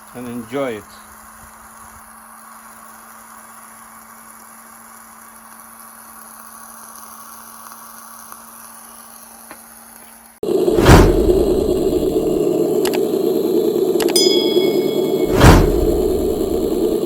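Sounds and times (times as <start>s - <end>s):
faint steady hiss: 0.0s - 10.4s
constant low hum: 10.5s - 17.0s.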